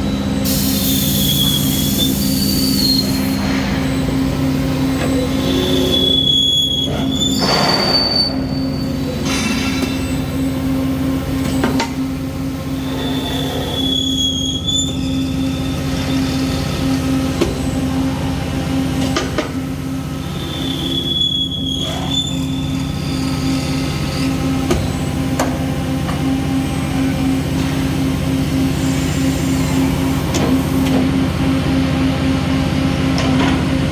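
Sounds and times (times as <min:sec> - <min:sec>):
short high-pitched squeal: 0:05.0 - 0:09.2, 0:12.8 - 0:15.3.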